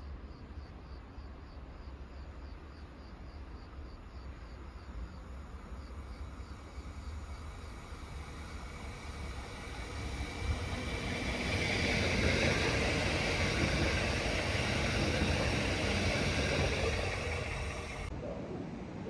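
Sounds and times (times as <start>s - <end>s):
train wheels rumbling on rail: 5.5s - 18.1s.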